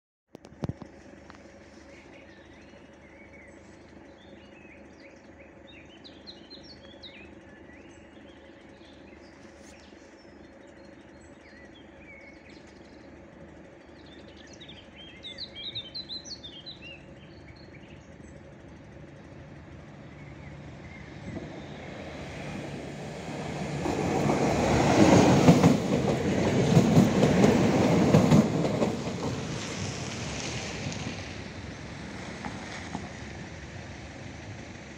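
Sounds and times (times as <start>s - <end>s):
diesel train passing: 0.9s - 34.9s.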